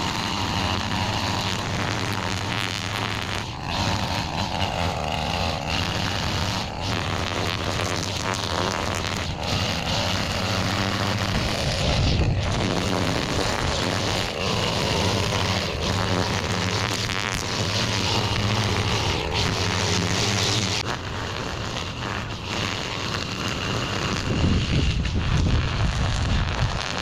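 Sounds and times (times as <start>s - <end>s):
lawn tool engine cutting weeds: 0.0s - 27.0s.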